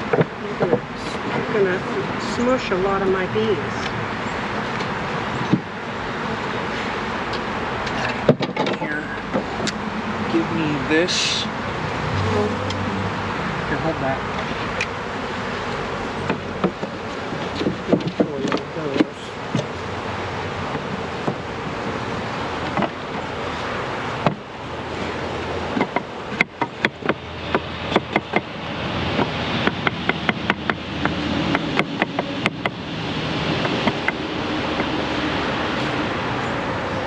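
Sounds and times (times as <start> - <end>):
honeybees buzzing: 0.0 - 37.0
sharp knocks and taps: 16.3 - 19.7, 25.7 - 28.5.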